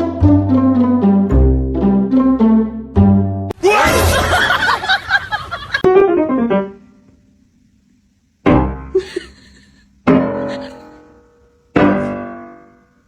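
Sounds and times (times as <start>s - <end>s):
piano chords ringing: 5.8s - 7.1s, 10.0s - 13.0s.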